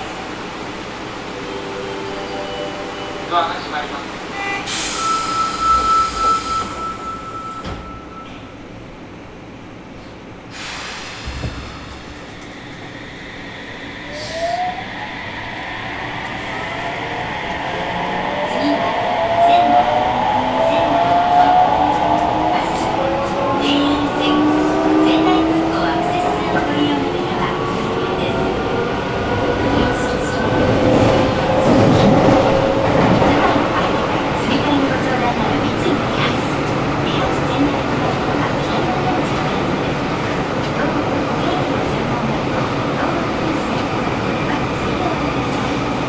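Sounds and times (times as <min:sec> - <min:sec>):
train wheels rumbling on rail: 0:03.6 - 0:46.0
low thump: 0:11.2 - 0:12.2.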